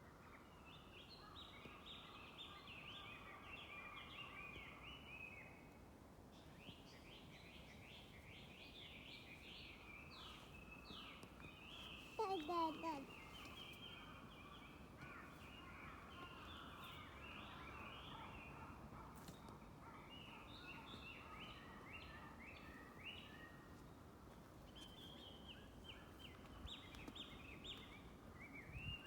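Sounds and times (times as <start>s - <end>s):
birds singing: 6.6s - 23.7s, 24.7s - 29.0s.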